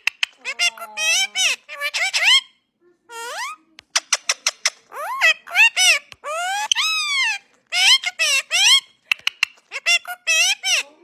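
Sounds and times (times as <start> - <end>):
parrot calls: 0.0 - 2.5, 3.1 - 11.0
parrot clicks: 3.8 - 4.9, 9.0 - 9.7.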